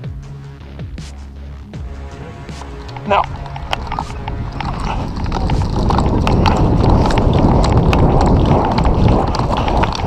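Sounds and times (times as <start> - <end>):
gear rattling: 2.5 - 10.0
quick running footfalls: 2.9 - 10.0.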